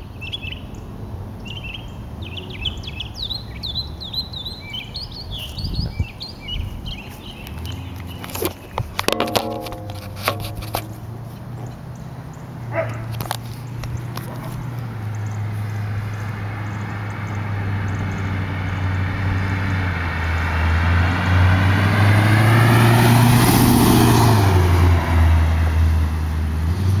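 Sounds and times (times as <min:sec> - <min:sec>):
car exhaust rumble driving by: 0:06.4 - 0:27.0.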